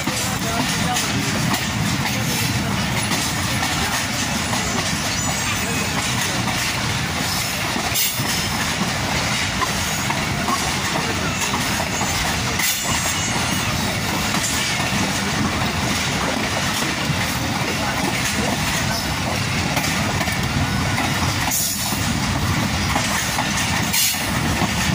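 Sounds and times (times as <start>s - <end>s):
train wheels rumbling and rattling: 0.0s - 24.9s
faint high wheel squeal: 4.6s - 6.0s, 12.0s - 13.8s.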